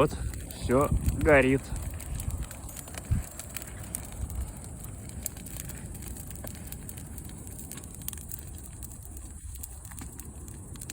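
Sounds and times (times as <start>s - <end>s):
bonfire crackling and popping: 0.0s - 10.9s
fire low rumble: 0.0s - 10.9s.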